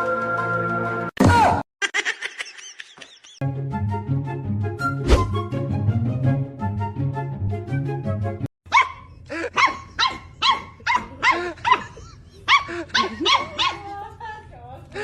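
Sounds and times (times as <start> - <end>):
background music: 0.0 - 1.5, 3.4 - 8.5
dog barking: 8.7 - 13.9.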